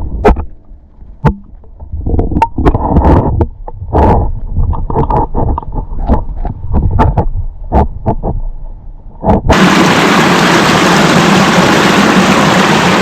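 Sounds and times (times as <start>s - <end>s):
muffled knocks and rumbles: 1.2s - 8.4s
creek water rushing: 9.5s - 13.0s.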